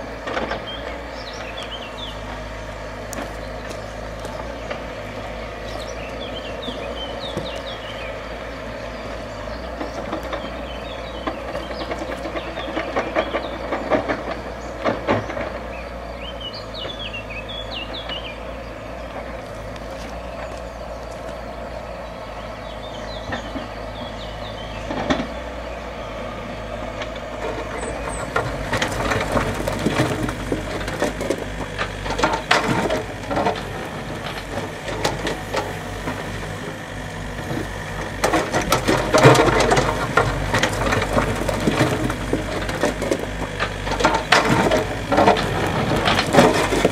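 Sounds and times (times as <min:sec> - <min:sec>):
heavy machine engine running: 0:00.0 - 0:46.9
stone and wood knocking and scraping: 0:27.0 - 0:36.6, 0:37.4 - 0:46.9.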